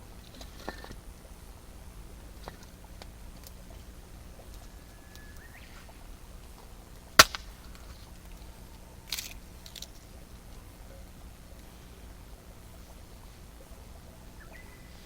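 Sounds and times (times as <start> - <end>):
campfire crackling: 0.0 - 15.0
sharp pop of fire: 7.2 - 7.8.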